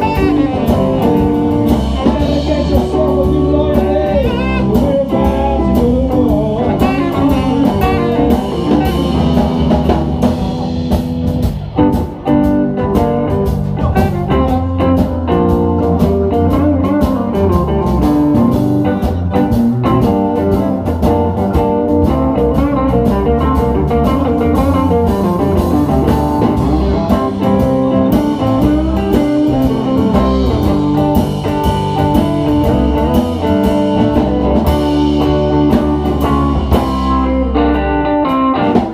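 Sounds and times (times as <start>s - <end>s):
bass: 0.0s - 38.9s
drum kit: 0.0s - 38.9s
electric guitar: 0.0s - 38.9s.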